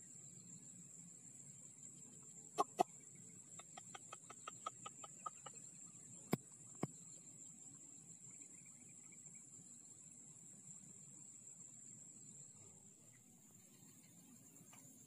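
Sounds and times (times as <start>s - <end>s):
bird clucking notes: 2.6s - 5.6s.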